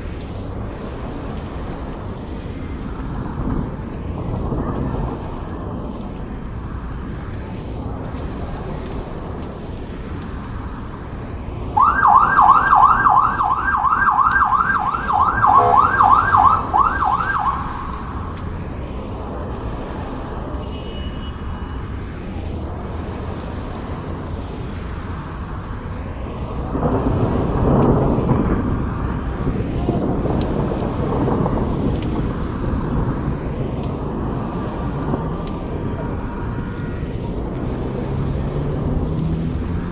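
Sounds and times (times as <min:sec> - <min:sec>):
steady rain: 0:00.0 - 0:39.9
wind: 0:00.0 - 0:39.9
siren in rising sweeps: 0:11.8 - 0:18.4
low rumble of thunder: 0:26.5 - 0:39.9.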